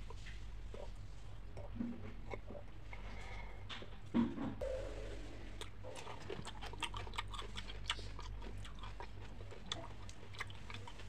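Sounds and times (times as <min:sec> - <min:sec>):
steady low hum: 0:00.0 - 0:11.0
crunchy food chewing: 0:05.6 - 0:11.0.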